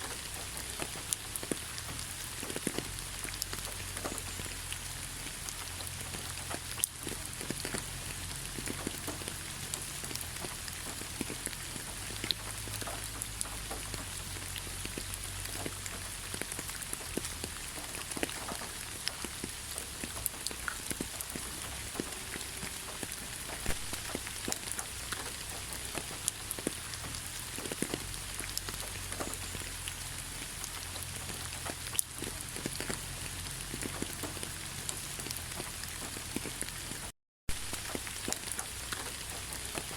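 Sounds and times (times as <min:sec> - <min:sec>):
raindrops ticking close by: 0:00.0 - 0:39.9
steady rain hiss: 0:00.0 - 0:39.9.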